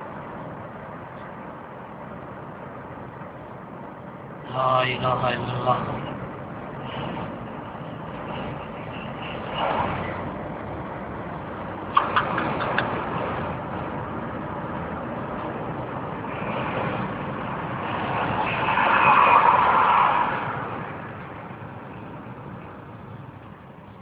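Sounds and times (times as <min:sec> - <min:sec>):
steady rush of noise: 0:00.0 - 0:24.0
vehicle passing: 0:04.8 - 0:23.8.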